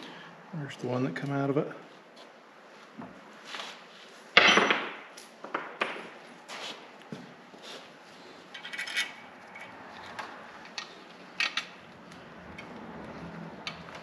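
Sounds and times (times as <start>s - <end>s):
metal hardware clinks: 8.5s - 9.8s
metal hardware rattle: 8.5s - 9.8s.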